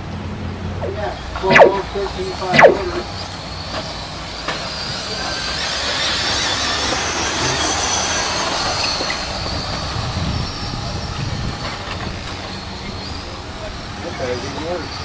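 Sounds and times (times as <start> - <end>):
electric rc truck motors whining: 4.4 - 10.5.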